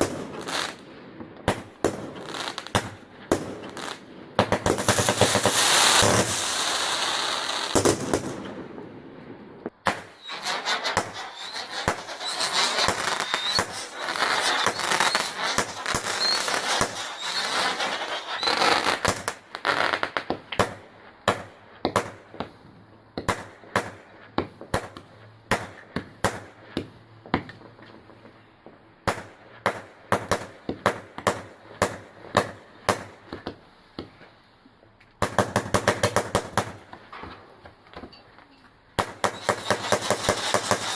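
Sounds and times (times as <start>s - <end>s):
fireworks crackling: 0.0s - 22.6s, 35.2s - 37.4s, 39.0s - 40.9s
sharp firework bangs: 1.4s - 8.9s, 9.7s - 22.5s, 39.0s - 40.9s
firework whistles: 4.7s - 8.3s, 9.8s - 20.1s, 39.0s - 40.9s.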